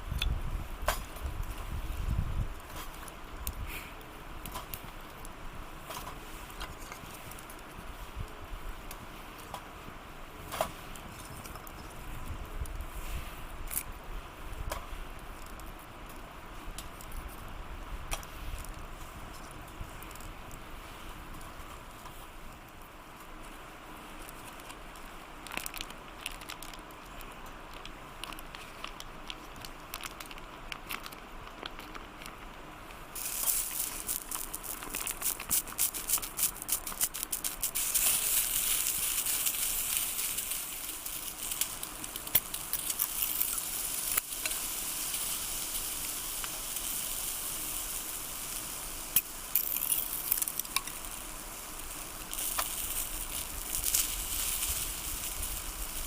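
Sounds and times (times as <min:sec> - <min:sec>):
campfire crackling: 0:00.0 - 0:56.0
food sizzling and spattering: 0:33.2 - 0:56.0.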